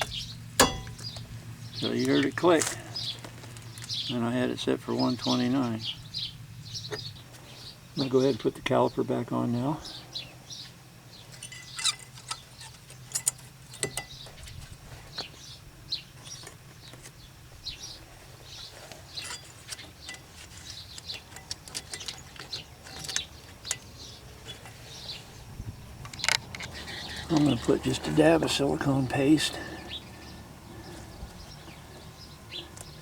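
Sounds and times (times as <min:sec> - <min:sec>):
metal parts clicking and tapping: 0:00.0 - 0:01.3, 0:11.3 - 0:14.6, 0:19.2 - 0:24.8, 0:26.0 - 0:27.6
birds chirping: 0:00.0 - 0:33.0.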